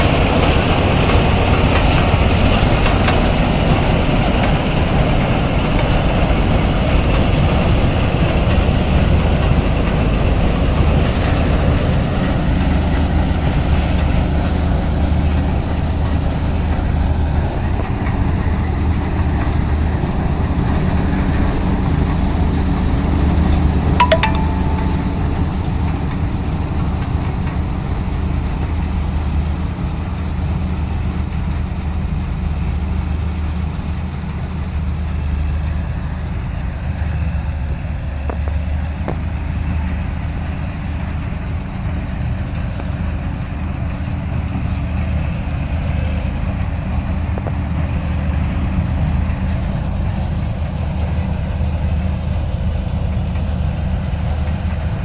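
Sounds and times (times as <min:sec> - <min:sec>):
diesel engine droning: 0:25.2 - 0:55.0.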